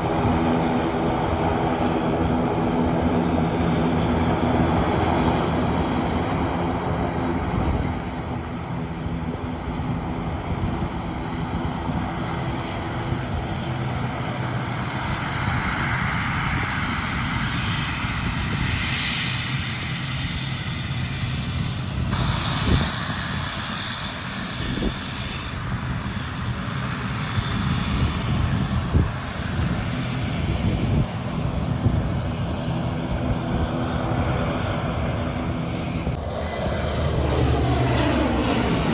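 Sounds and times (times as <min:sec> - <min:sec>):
airliner engines droning: 0:00.0 - 0:38.9.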